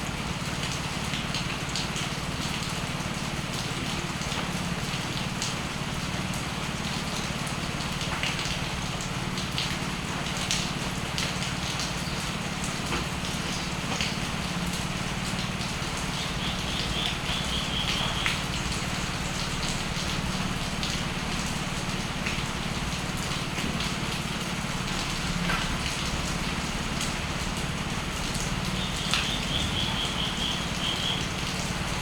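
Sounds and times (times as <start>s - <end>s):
rain dripping and pattering: 0.0s - 32.0s.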